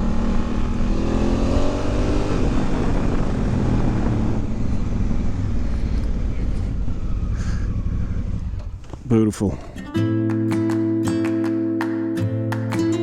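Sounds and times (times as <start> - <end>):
motorcycle engine accelerating: 0.0 - 9.0
wind and road noise: 0.0 - 9.8.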